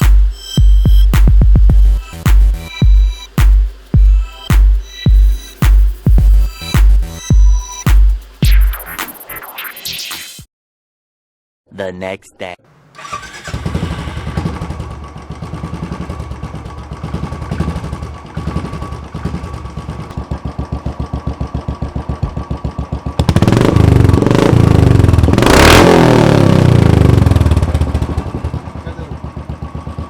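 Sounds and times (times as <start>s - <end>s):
motorcycle engine idling: 13.0s - 25.4s, 26.6s - 30.0s
motorcycle engine revving: 13.0s - 30.0s.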